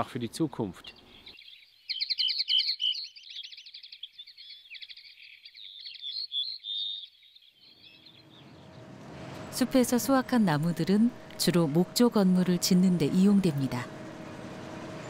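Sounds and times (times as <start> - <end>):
songbirds chirping and trilling: 0.0 - 15.0
low rumble: 8.1 - 15.0.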